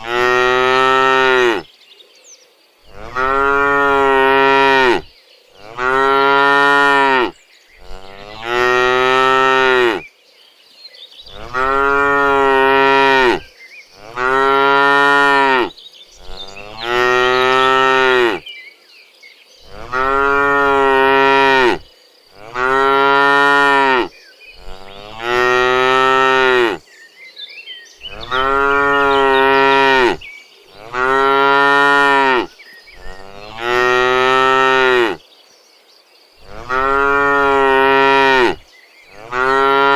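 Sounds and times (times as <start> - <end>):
cattle mooing: 0.0 - 1.6, 2.9 - 10.0, 11.3 - 13.4, 14.0 - 18.4, 19.7 - 21.8, 22.4 - 26.8, 28.1 - 30.2, 30.8 - 35.2, 36.4 - 38.6, 39.2 - 39.9.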